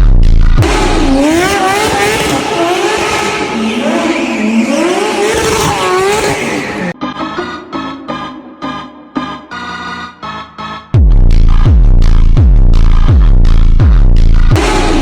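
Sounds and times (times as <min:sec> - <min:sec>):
car engine and road noise: 0:00.0 - 0:09.9
car tyres squealing: 0:00.7 - 0:08.3.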